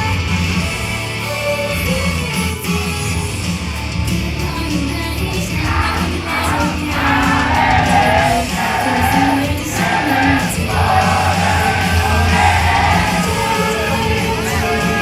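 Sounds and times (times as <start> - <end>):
pop song over pa: 0.0 - 15.0
person singing: 4.4 - 15.0.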